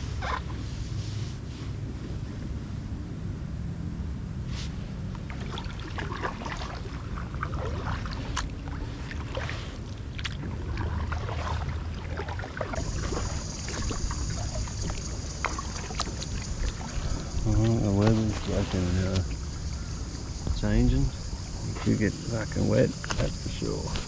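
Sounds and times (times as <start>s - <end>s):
paddle splashing in water: 5.2s - 22.4s
high hiss: 12.8s - 24.0s.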